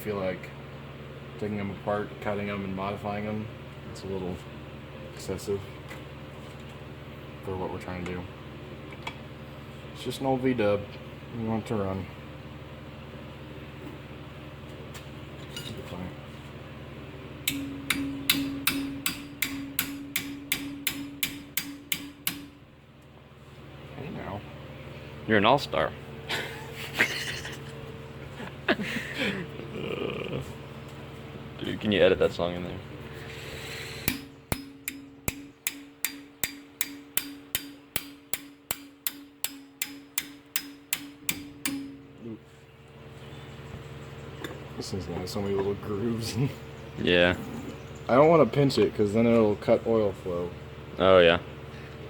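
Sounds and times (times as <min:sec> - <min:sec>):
faint steady hum: 0:00.0 - 0:52.0
hammer striking metal: 0:17.4 - 0:22.6, 0:34.0 - 0:42.1.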